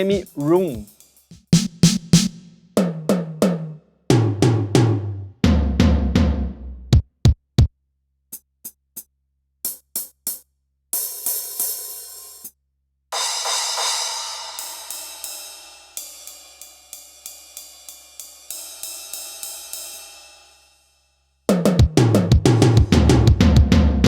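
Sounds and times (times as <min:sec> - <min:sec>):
electronic drum tom fill: 0:00.0 - 0:03.2, 0:21.7 - 0:24.0
cymbal crashes ringing: 0:13.2 - 0:20.7.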